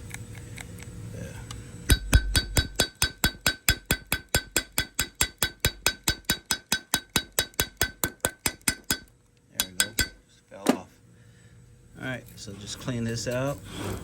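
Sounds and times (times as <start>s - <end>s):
metal tool tapping on metal: 1.9s - 10.8s.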